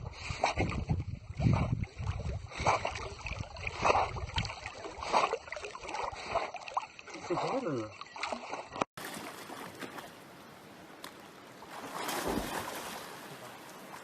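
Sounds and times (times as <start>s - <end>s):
wind rumbling on microphone: 0.0s - 5.2s
water splashing and sloshing: 0.0s - 14.0s.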